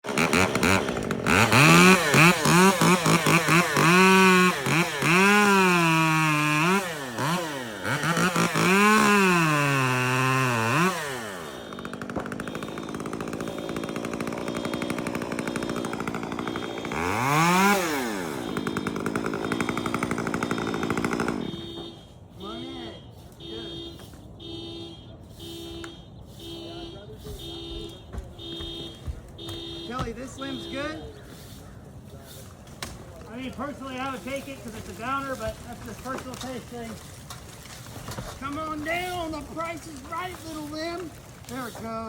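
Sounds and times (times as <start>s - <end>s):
chainsaw revving: 0.0s - 21.8s.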